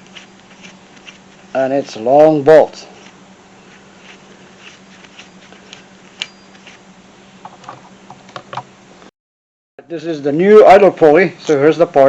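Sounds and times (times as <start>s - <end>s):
faint steady hum: 0.0s - 9.1s.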